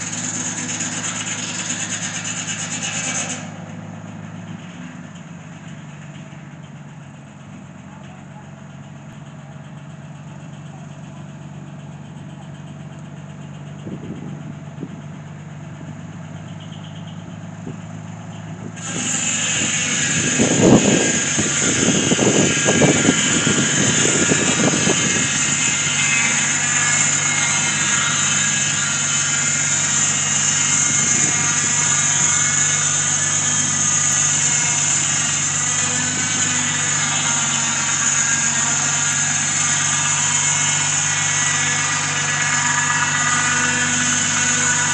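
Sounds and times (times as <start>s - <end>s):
loud machine with hiss: 0.0s - 3.8s, 18.8s - 44.9s
engine running: 0.0s - 44.9s
heavy machine pulses: 15.8s - 44.9s.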